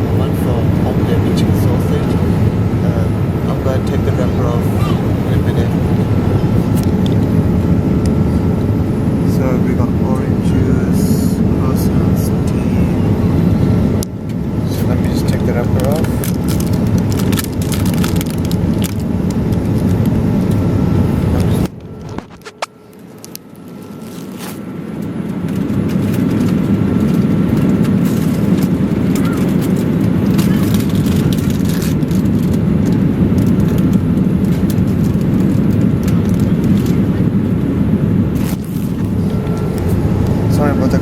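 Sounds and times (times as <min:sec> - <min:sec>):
airliner cabin noise: 0:00.0 - 0:41.0.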